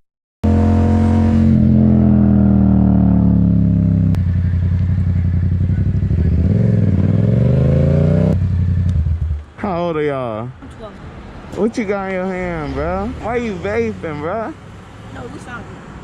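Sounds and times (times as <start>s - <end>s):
motorcycle engine revving: 0.4s - 9.5s.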